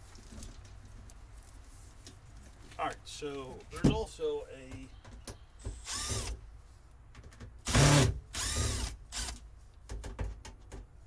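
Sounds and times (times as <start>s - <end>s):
power drill spinning: 5.7s - 6.4s, 7.6s - 9.4s.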